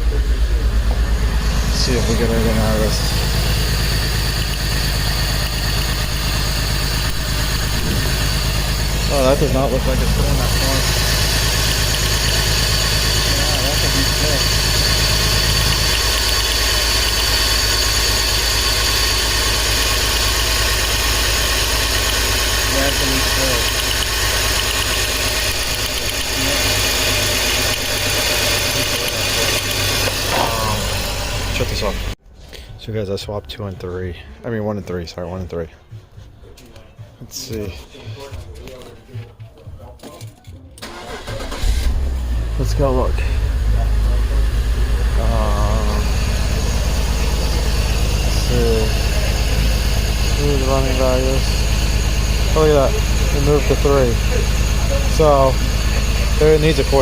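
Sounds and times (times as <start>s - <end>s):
faint high whine: 0.0s - 19.3s
car engine idling roughly: 0.0s - 32.2s, 40.8s - 57.0s.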